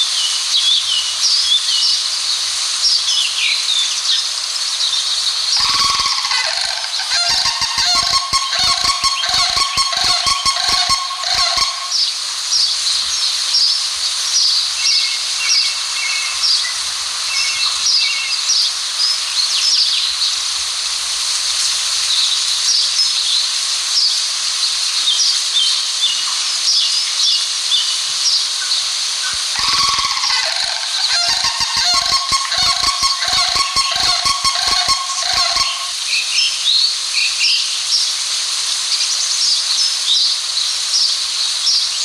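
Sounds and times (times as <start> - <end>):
outdoor background hiss: 0.0 - 42.0
cranes honking: 5.6 - 12.0, 29.4 - 36.0
small birds chirping: 5.6 - 12.1, 29.2 - 36.0.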